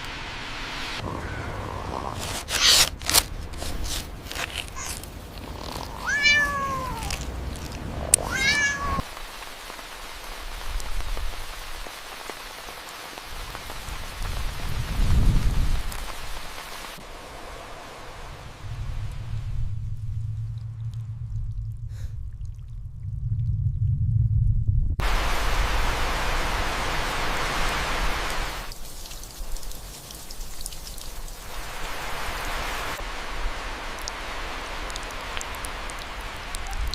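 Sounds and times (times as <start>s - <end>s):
cat meowing: 5.8s - 7.2s, 8.1s - 9.1s
low rumble: 17.2s - 26.4s.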